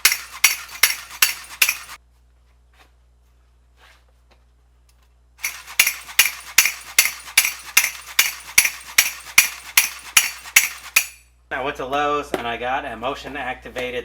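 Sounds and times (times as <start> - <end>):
toy monkey clashing cymbals: 0.0 - 2.0, 5.4 - 11.2.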